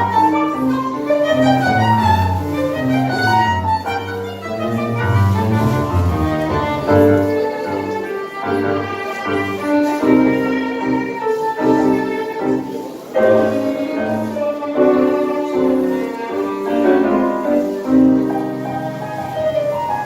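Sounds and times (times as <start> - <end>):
piano: 0.0 - 20.0
tango ensemble playing: 0.0 - 20.0
violin: 0.0 - 20.0.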